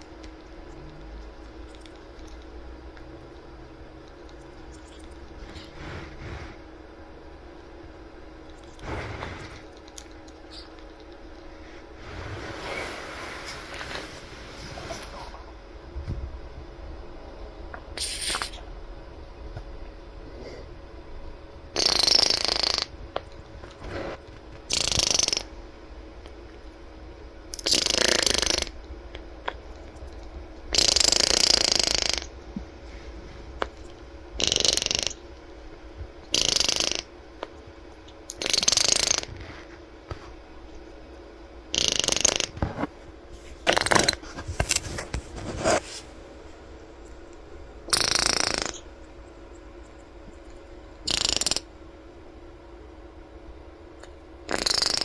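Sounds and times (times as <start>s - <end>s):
parrot blowing raspberries: 21.8s - 22.9s, 23.9s - 25.5s, 41.7s - 42.6s, 47.9s - 48.8s, 51.0s - 51.7s, 54.5s - 55.0s.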